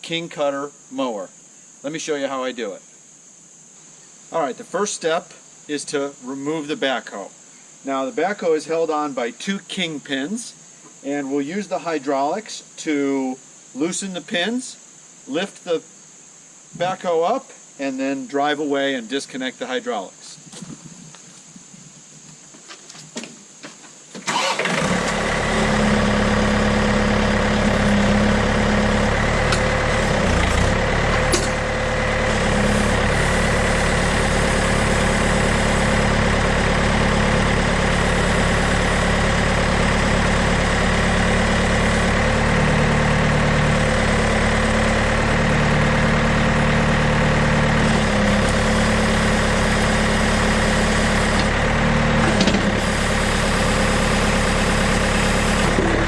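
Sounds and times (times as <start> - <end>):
diesel engine running: 24.3 - 56.0.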